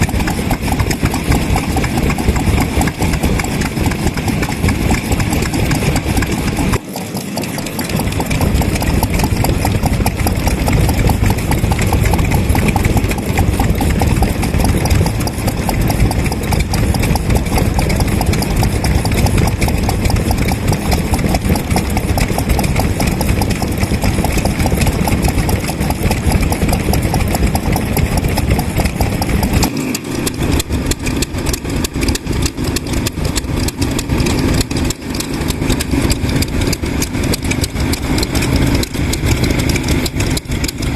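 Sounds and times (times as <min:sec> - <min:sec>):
stationary engines running: 0:00.0 - 0:40.9.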